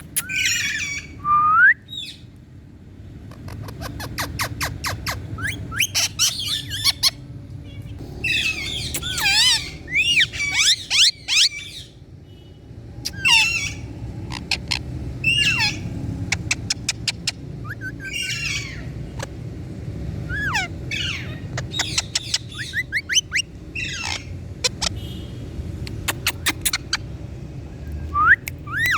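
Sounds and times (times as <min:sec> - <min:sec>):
parakeet squawking and whistling: 0:00.0 - 0:01.2, 0:03.3 - 0:07.2, 0:08.0 - 0:12.0, 0:13.0 - 0:19.3, 0:20.2 - 0:25.2, 0:25.8 - 0:27.1, 0:28.1 - 0:28.9
parakeet clicks: 0:27.9 - 0:28.9.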